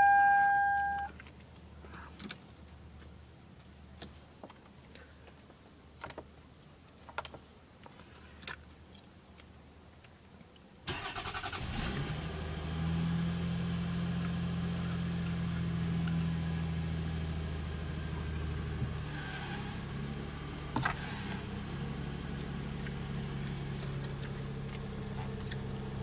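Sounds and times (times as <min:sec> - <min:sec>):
car engine idling: 0:12.2 - 0:26.0.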